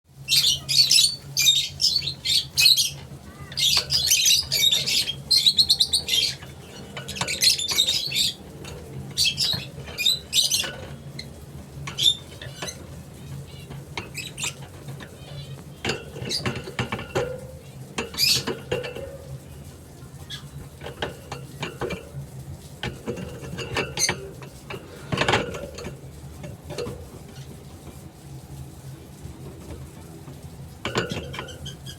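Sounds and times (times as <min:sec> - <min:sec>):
steady low hum: 0:00.1 - 0:31.9
lovebird chirping: 0:00.3 - 0:03.0, 0:03.6 - 0:06.5.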